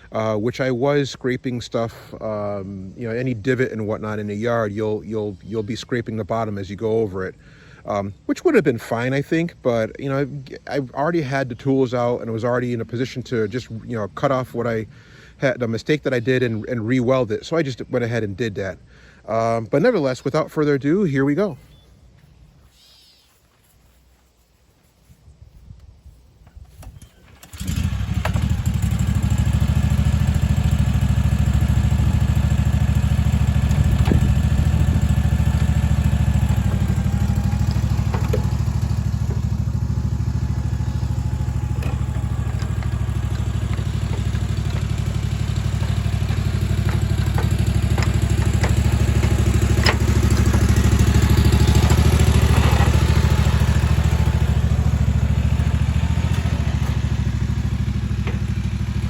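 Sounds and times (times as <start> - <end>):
mower engine running: 26.8 - 59.0
light knocks and rattles: 33.5 - 54.0, 54.6 - 59.0.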